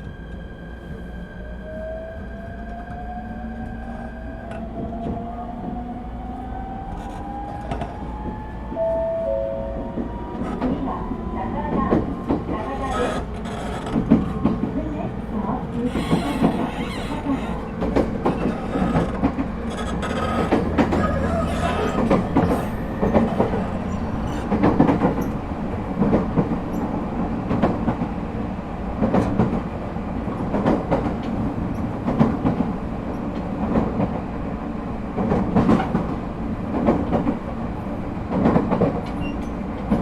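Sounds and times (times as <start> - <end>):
train running noise: 0.0 - 40.0
wheels clacking over rail joints: 11.7 - 26.9.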